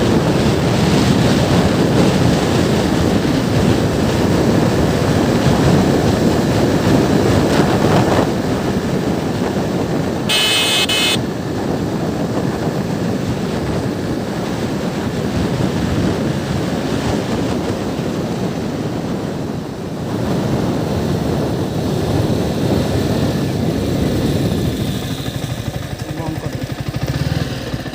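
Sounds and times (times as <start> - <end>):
motorcycle engine running: 0.0 - 17.5, 20.2 - 27.9
wind rushing on microphone: 0.0 - 27.9
brief high-pitched tone: 10.3 - 11.2.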